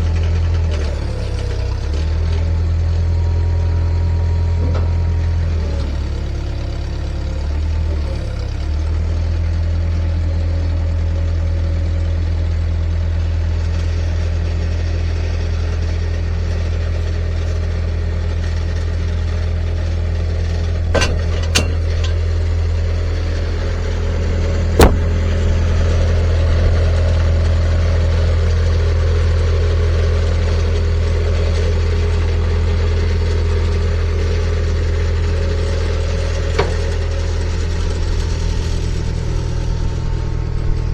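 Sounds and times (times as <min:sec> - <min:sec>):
engine running steadily: 0:00.0 - 0:40.9
sharp knocks: 0:20.9 - 0:22.3, 0:24.8 - 0:25.4.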